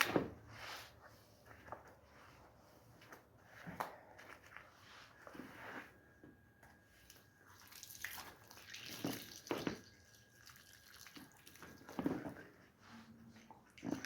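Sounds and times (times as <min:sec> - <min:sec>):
water dripping and splashing: 0:07.6 - 0:12.0.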